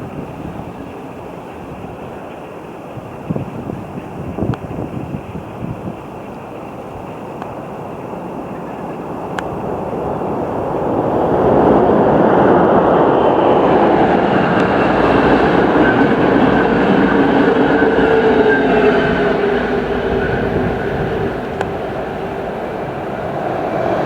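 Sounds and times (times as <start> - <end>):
train rumbling past: 0.0 - 24.0
steady whine: 7.4 - 24.0.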